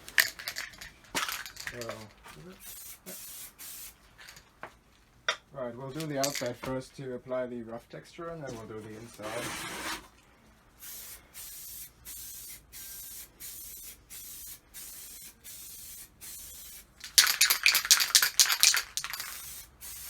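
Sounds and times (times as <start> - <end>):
crackly rattling: 0.0 - 2.2, 17.0 - 19.5
spray paint can hissing: 2.6 - 4.4, 10.8 - 20.0.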